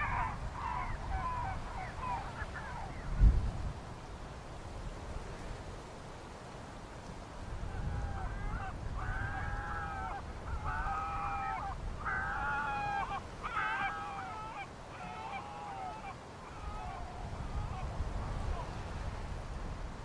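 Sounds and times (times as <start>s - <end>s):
large birds honking: 0.0s - 3.1s, 7.6s - 19.0s
wind rumble on microphone: 0.0s - 15.0s, 16.4s - 20.0s.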